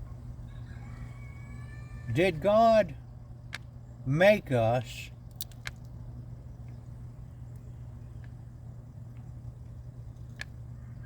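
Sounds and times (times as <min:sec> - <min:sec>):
steady low hum: 0:00.0 - 0:11.0
grease gun clicks: 0:05.3 - 0:05.9.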